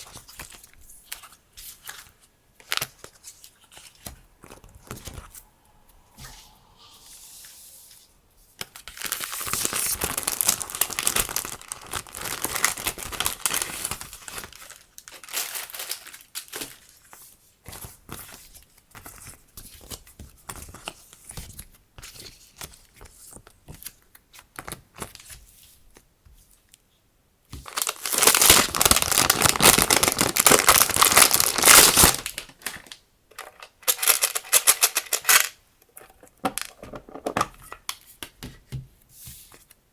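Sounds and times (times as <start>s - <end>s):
packaging crinkling and tearing: 8.6s - 17.1s, 27.6s - 37.0s
small taps and rustles: 35.8s - 39.8s.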